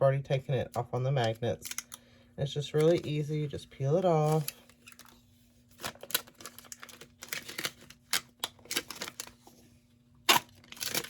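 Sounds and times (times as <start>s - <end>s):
plastic film clicks and crinkles: 4.0s - 9.4s, 10.2s - 11.0s.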